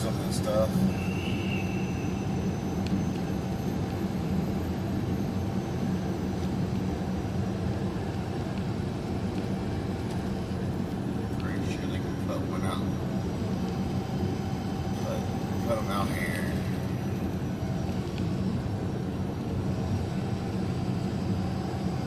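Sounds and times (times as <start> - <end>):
road noise: 0.0 - 22.0
truck engine drone: 0.0 - 22.0.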